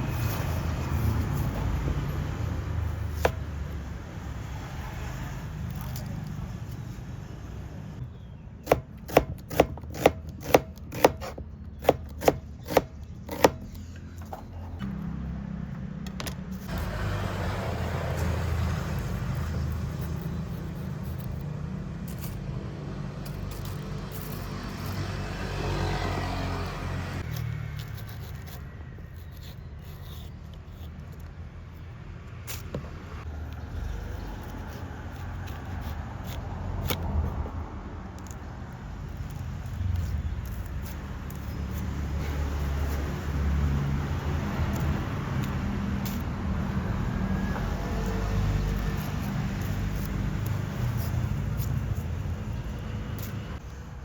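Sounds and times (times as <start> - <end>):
knife chopping on wooden board: 8.6 - 13.8.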